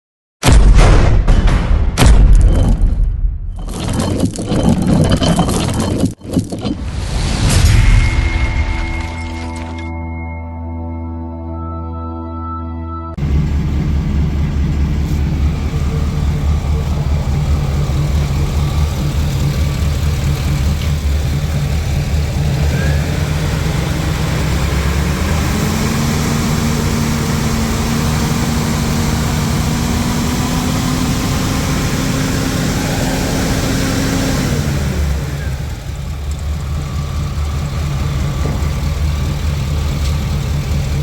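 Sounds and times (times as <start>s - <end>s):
engine idling: 13.2s - 41.0s.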